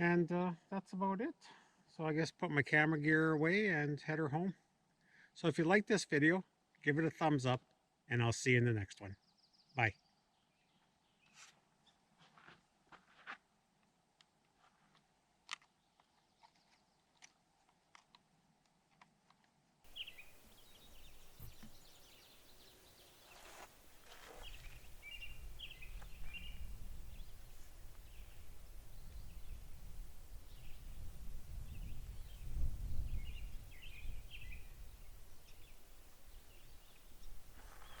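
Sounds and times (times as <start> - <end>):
high bird chirps and twitters: 19.9 - 29.6
wind rumble on microphone: 24.5 - 38.0.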